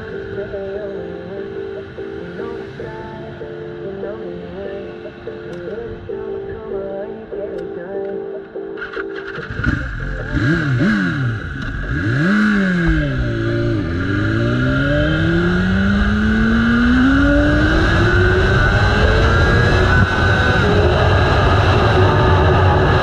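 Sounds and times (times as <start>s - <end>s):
motorcycle engine revving: 8.9s - 23.0s.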